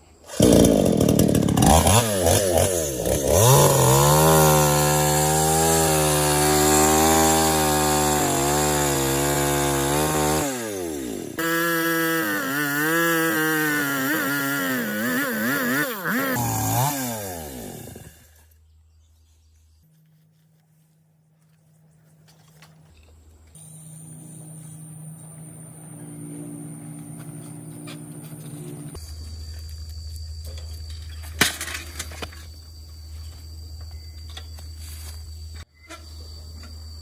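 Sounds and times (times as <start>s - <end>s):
chainsaw engine revving: 0.3s - 18.5s, 23.6s - 29.0s.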